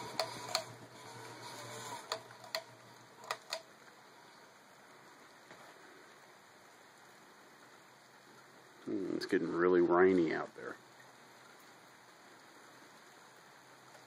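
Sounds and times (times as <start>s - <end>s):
sharp clicks: 0.0s - 0.8s, 1.6s - 3.7s
ceiling fan motor hum: 0.0s - 14.0s.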